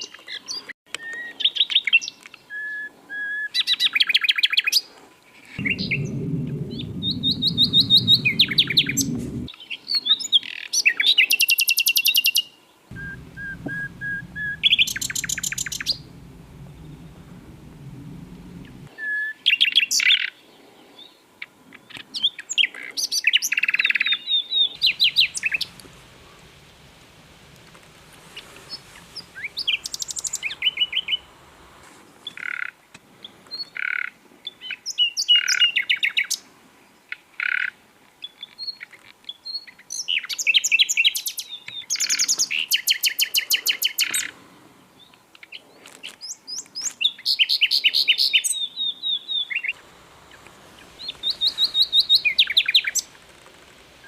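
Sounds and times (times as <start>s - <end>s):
nightingale singing: 12.9s - 18.9s.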